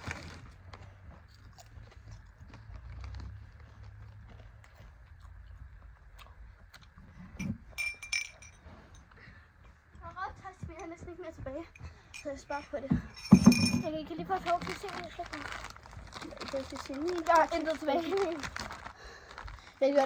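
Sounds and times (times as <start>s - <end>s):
snacks crunching: 0.0s - 7.0s, 14.7s - 19.9s
short sharp clinks: 7.4s - 8.6s, 12.1s - 14.1s.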